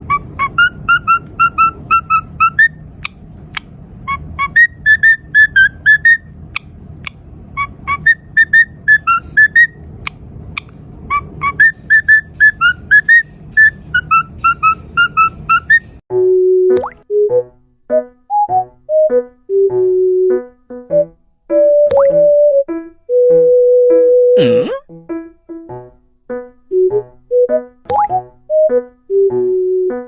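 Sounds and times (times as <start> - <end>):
cockatiel whistling: 0.1 - 9.8, 10.6 - 16.0
sharp clicks: 3.0 - 3.7.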